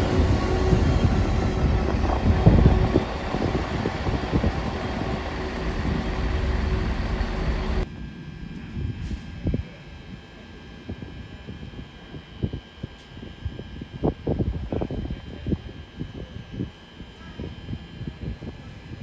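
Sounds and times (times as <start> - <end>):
train rumbling on rails: 0.0 - 7.9.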